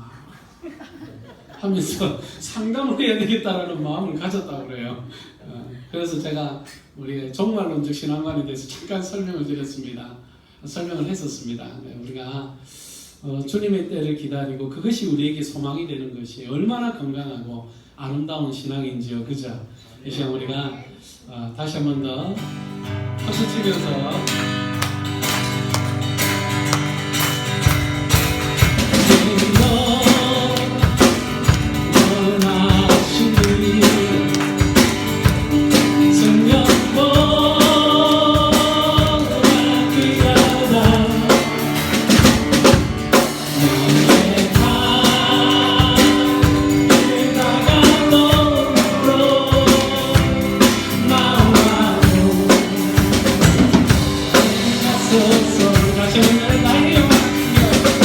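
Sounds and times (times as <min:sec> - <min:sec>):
drum kit beat: 0:24.2 - 0:58.0
person singing melody: 0:28.8 - 0:42.2, 0:43.2 - 0:58.0.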